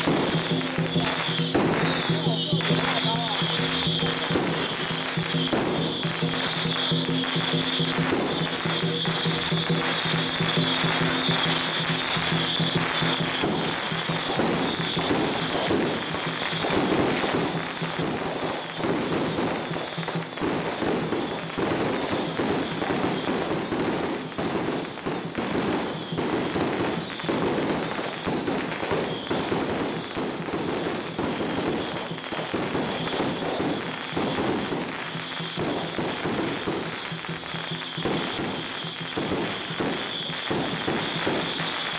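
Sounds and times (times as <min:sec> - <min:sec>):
firecrackers crackling: 0:00.0 - 0:41.9.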